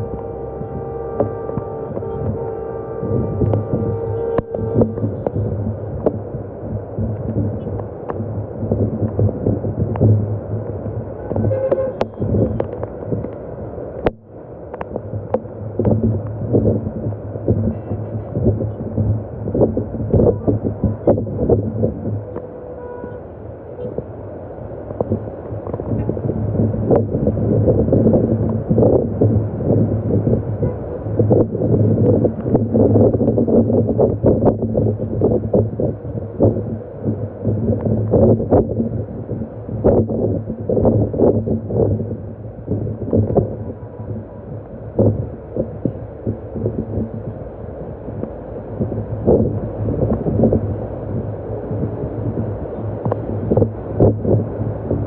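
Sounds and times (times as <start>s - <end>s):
rain drips and taps: 0.0s - 2.5s, 3.3s - 22.5s, 48.1s - 55.0s
scattered crackles: 0.0s - 24.2s, 24.8s - 55.0s
steady low hum: 0.0s - 55.0s
wind buffeting microphone: 0.0s - 55.0s.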